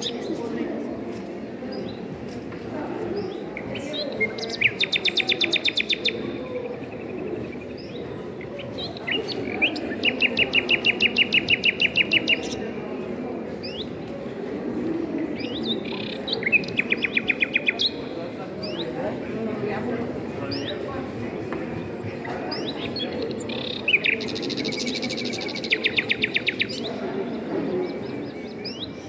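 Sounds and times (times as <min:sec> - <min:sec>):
songbird trilling: 0:04.2 - 0:07.9, 0:08.8 - 0:12.6, 0:22.6 - 0:26.9.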